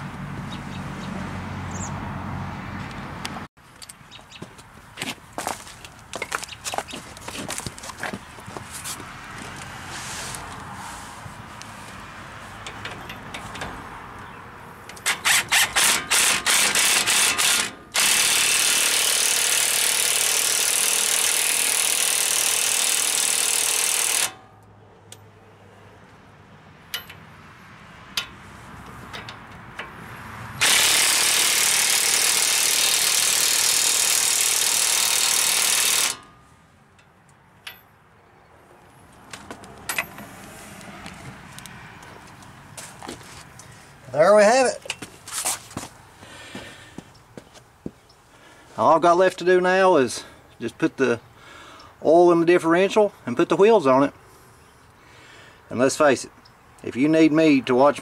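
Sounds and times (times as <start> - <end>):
power tool bursts: 15.0 - 24.4, 30.6 - 36.3.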